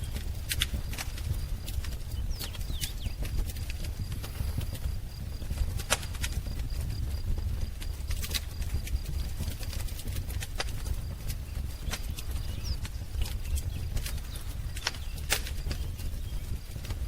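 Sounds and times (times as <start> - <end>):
wood fire crackling and popping: 0.0 - 17.0
faint bird chirps: 2.0 - 3.3, 11.4 - 17.0.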